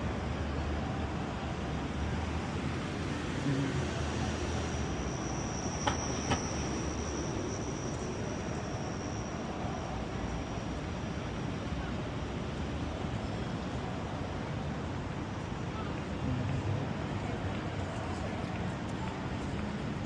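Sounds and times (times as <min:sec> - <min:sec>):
city traffic rumble: 0:00.0 - 0:20.0
train wheels squealing on rails: 0:00.0 - 0:20.0.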